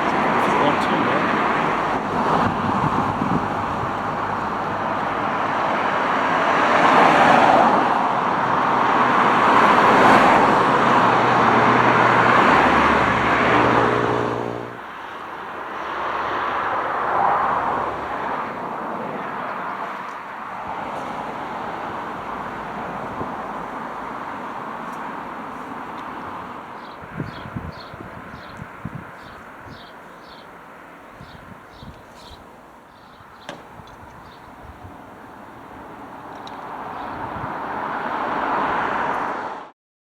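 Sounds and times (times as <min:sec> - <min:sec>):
vehicle passing close by: 0:00.0 - 0:29.2
distant traffic noise: 0:00.0 - 0:39.5.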